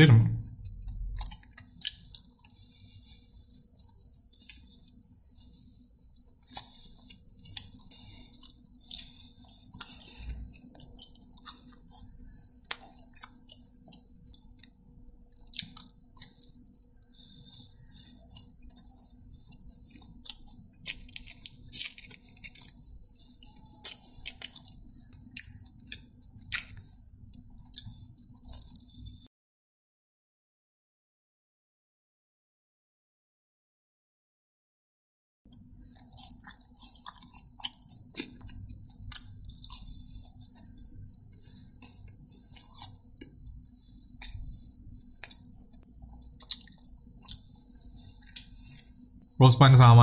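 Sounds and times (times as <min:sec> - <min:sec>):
faint low hum: 0:00.0 - 0:29.3
person chewing with mouth smacks: 0:00.5 - 0:29.2, 0:35.5 - 0:49.3.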